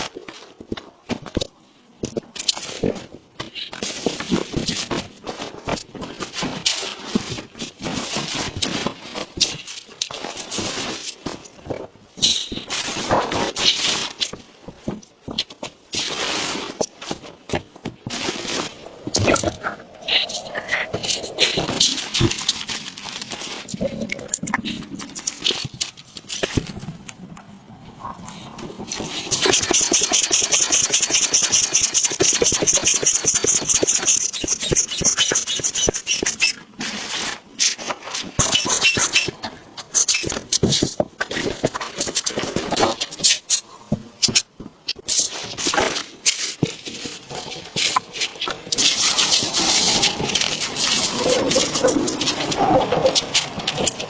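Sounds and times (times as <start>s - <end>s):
fast even rasping: 28.9s - 36.2s.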